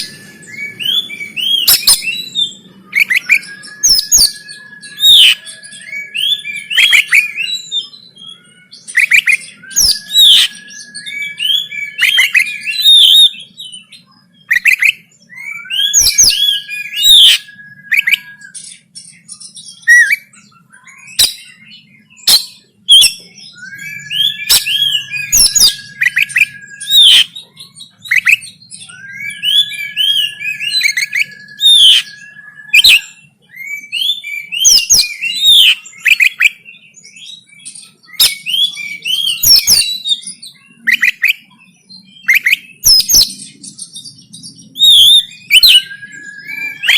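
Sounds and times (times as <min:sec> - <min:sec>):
bird singing whistles and chirps: 0:00.0 - 0:46.9.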